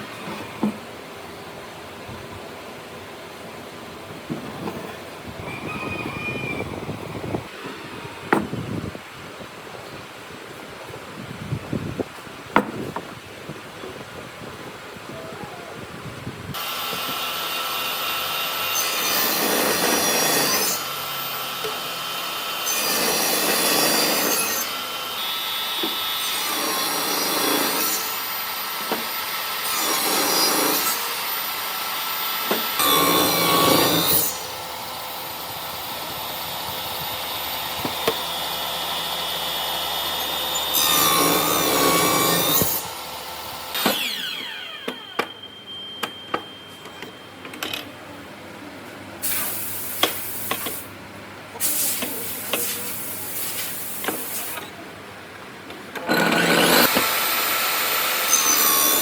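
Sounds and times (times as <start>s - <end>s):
power tool cutting wood: 16.6s - 45.3s, 56.0s - 59.0s.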